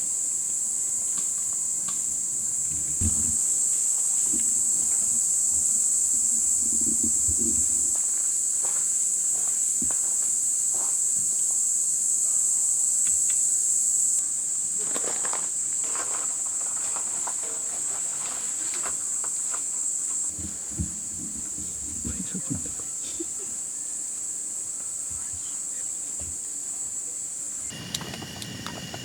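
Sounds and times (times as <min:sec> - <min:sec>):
insects shrilling: 0:00.0 - 0:20.8, 0:21.4 - 0:29.0
faint clicks and rustles: 0:14.8 - 0:23.5, 0:27.6 - 0:29.0.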